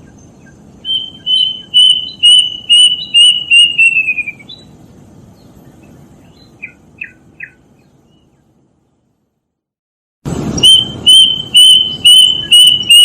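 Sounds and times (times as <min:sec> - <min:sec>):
cuckoo whistling: 0:00.0 - 0:04.8, 0:10.6 - 0:13.0.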